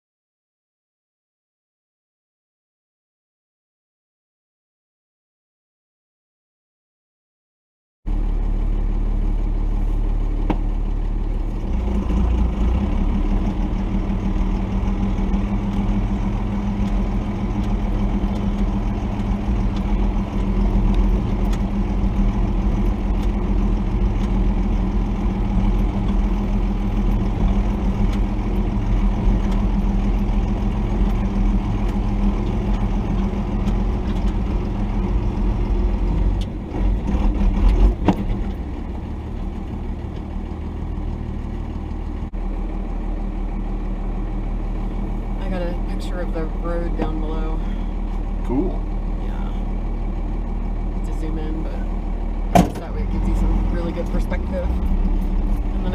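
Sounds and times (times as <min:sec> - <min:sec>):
diesel engine running: 0:08.1 - 0:55.9.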